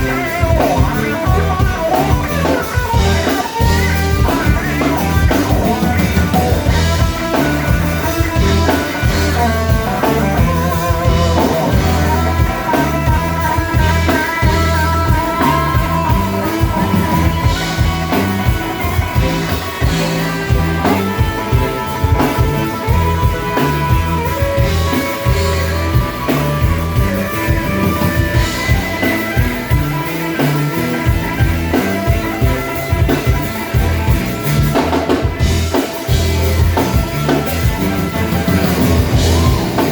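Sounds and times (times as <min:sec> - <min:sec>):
bass and drum beat: 0:00.0 - 0:39.9
electric guitar lines: 0:00.0 - 0:39.9.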